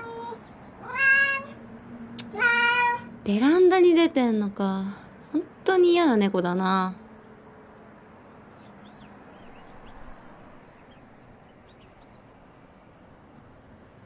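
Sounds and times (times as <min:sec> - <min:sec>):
small birds twittering: 0:00.0 - 0:03.5, 0:06.8 - 0:13.4
low outdoor hum: 0:00.0 - 0:14.0.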